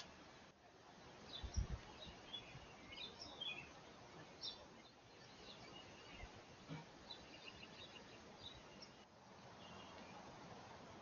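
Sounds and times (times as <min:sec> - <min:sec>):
low steady hiss: 0:00.0 - 0:11.0
small birds chirping: 0:00.0 - 0:11.0.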